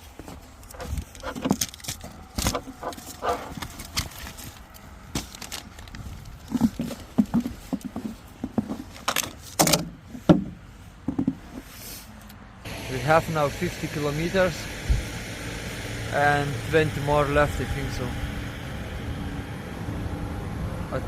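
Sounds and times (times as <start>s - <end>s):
rustling of objects: 0.0s - 12.2s.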